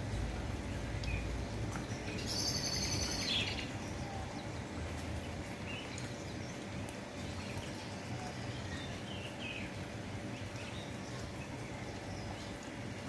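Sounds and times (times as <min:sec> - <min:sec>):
low background noise: 0:00.0 - 0:13.0
songbird trilling: 0:02.2 - 0:04.3.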